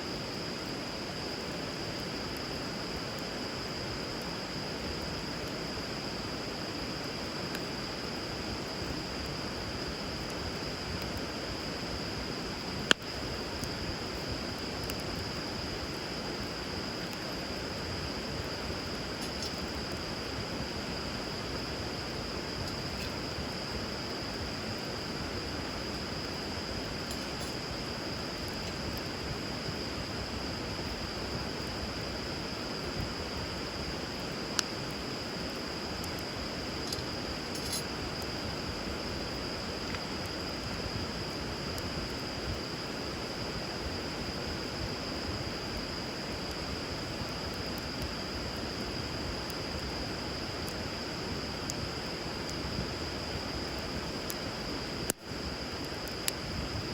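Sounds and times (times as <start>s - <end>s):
fire crackling: 0.5s - 56.9s
fire popping: 8.4s - 30.2s, 33.3s - 38.6s.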